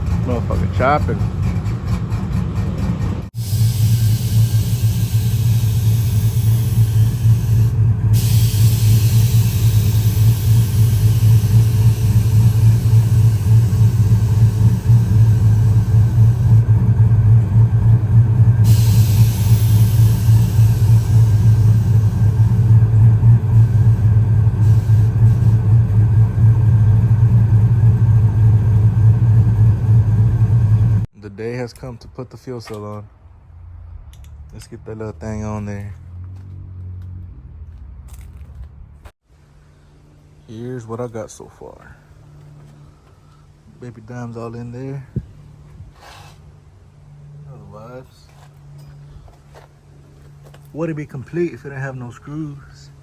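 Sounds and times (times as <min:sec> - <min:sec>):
truck engine exhaust rumble: 0:00.0 - 0:31.1
hiss: 0:03.4 - 0:16.1, 0:18.6 - 0:22.4, 0:24.6 - 0:25.6.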